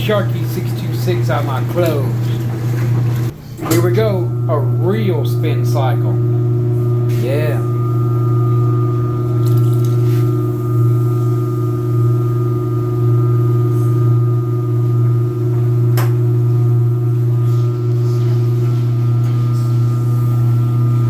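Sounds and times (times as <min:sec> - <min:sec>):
washing machine spinning hum: 0:00.0 - 0:21.0
washing machine sharp click: 0:01.6 - 0:04.2, 0:15.9 - 0:16.3.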